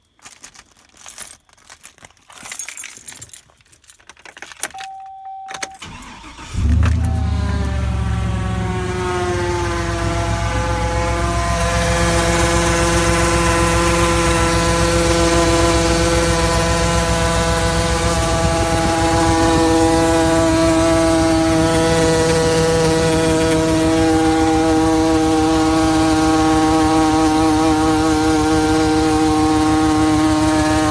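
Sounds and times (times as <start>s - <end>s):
keys jingling: 0.0s - 7.6s
truck engine starting and idling: 4.8s - 30.9s
engine whine: 5.5s - 30.9s.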